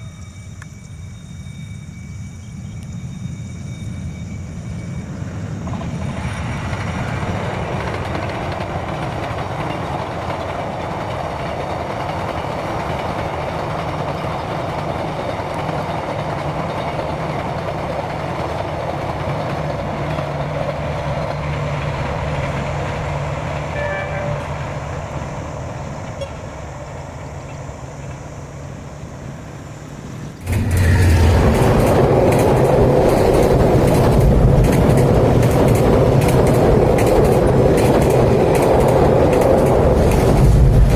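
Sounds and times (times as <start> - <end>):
train rumbling on rails: 0.0 - 40.9.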